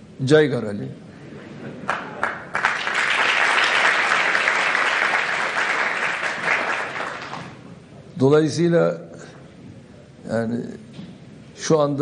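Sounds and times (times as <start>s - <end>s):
audience applauding: 1.8s - 7.6s.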